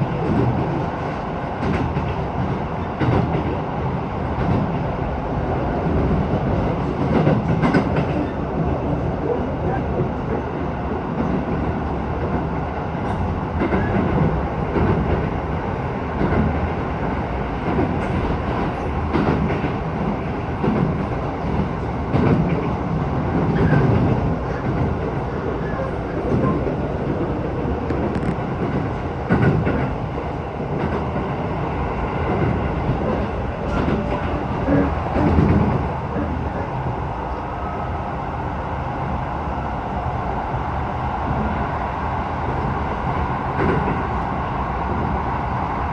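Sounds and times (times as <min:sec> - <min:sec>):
electric train rumbling: 0:00.0 - 0:45.9.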